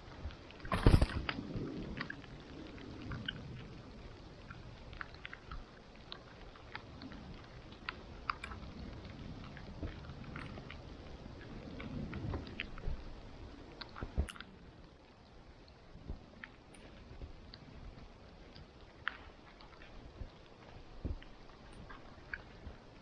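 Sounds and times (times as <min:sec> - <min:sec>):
campfire crackling and popping: 0:00.0 - 0:23.0
low fire rumble: 0:00.0 - 0:23.0.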